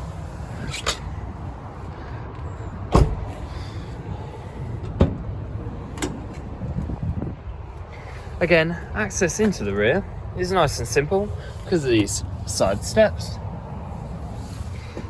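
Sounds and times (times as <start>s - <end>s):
van door clunk: 2.9s - 3.4s, 4.8s - 5.3s.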